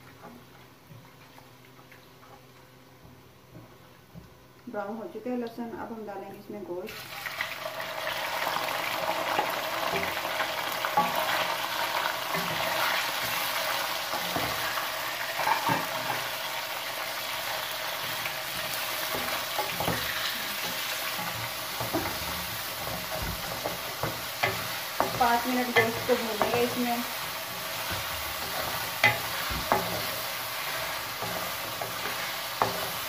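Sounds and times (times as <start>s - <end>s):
chicken sizzling in hot oil: 6.9s - 33.0s
spatula scraping a metal pan: 18.5s - 33.0s.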